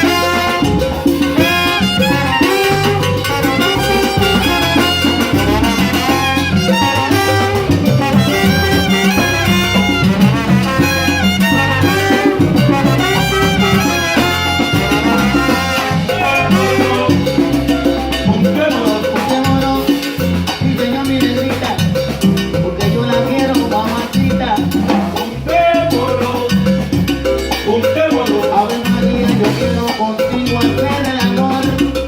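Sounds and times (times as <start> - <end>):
horns: 0.0 - 17.8
live salsa band playing: 0.0 - 32.0
percussion: 0.0 - 32.0.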